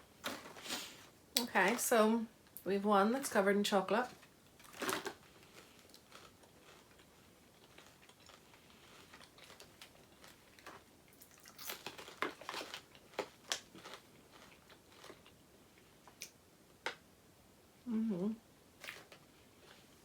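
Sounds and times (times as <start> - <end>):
popcorn being chewed: 4.1 - 16.4, 18.8 - 20.0.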